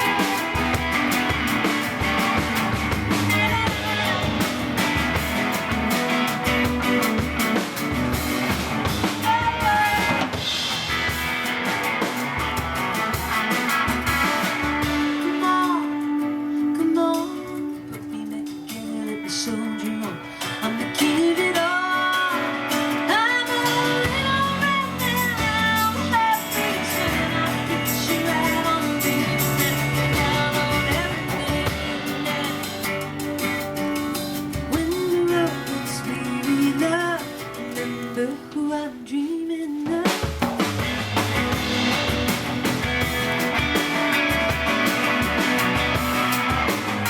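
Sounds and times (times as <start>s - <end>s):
low bass notes: 0.0s - 11.4s, 40.7s - 47.0s
guitar melody with bends: 0.0s - 39.2s, 40.0s - 47.0s.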